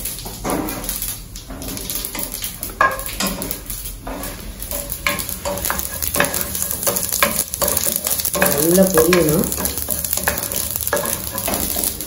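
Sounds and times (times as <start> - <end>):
seeds sizzling in hot oil: 0.0 - 12.0
wooden spatula scraping pan: 4.1 - 12.0.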